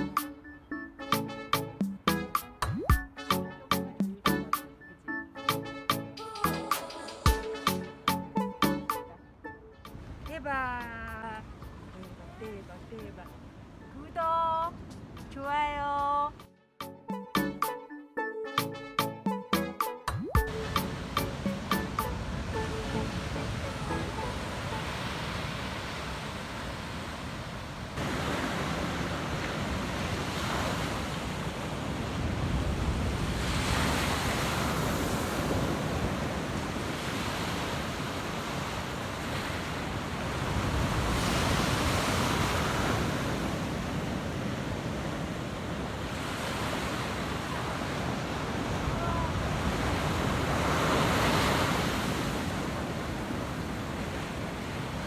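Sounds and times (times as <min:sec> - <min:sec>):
surf breaking on a beach: 0:20.5 - 0:55.0.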